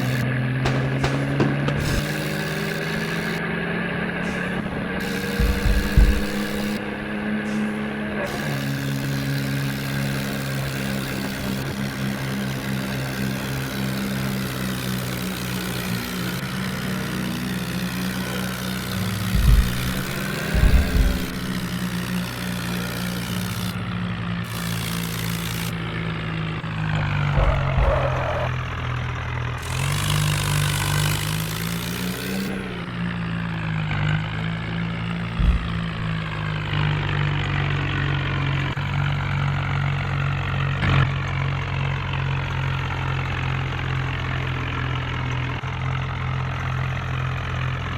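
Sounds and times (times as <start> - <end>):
low thumps: 0.0 - 7.2, 18.8 - 22.4, 26.8 - 28.6, 35.2 - 36.4
diesel engine revving: 0.0 - 47.9.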